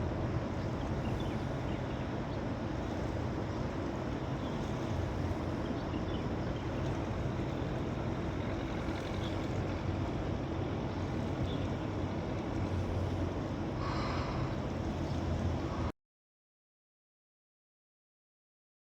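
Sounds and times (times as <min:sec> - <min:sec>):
low motor-like rumble: 0:00.0 - 0:15.9
wind-like hiss: 0:12.6 - 0:15.9.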